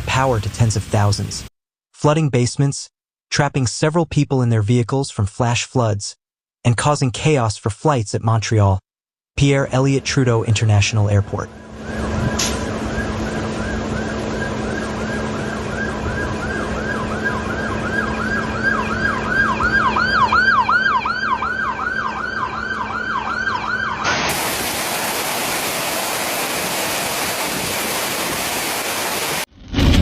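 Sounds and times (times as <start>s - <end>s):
engine hum and traffic noise: 11.5s - 24.0s
emergency siren yelping: 11.5s - 25.3s
heavy rain hissing: 24.1s - 29.5s.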